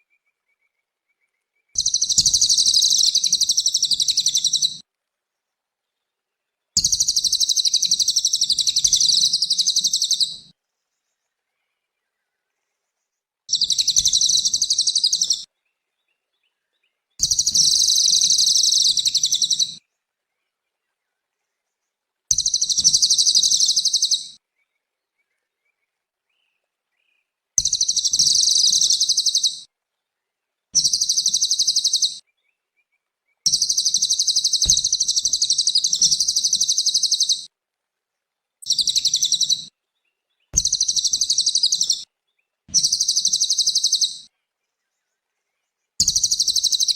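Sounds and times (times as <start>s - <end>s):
bird singing trilled phrases: 0.2s - 4.8s, 6.8s - 10.5s, 13.5s - 19.8s, 22.3s - 24.8s, 26.4s - 29.7s, 30.8s - 32.6s, 33.3s - 37.5s, 38.6s - 46.9s.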